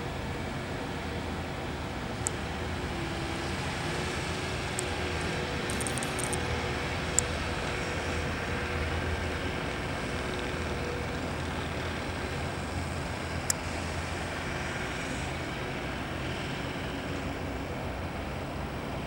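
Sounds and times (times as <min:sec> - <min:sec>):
truck engines rumbling: 0:00.0 - 0:19.0.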